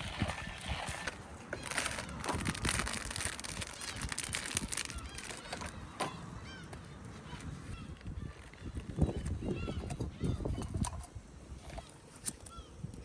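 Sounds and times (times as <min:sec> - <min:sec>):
strong wind on microphone: 0:00.0 - 0:05.9, 0:07.3 - 0:11.7
rain crackling: 0:01.6 - 0:05.7.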